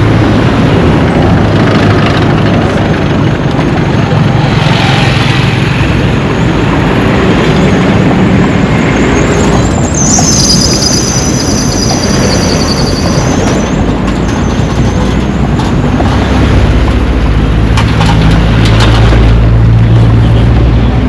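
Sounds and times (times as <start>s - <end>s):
traffic rumble: 0.0s - 21.0s
high squeal: 9.0s - 15.0s.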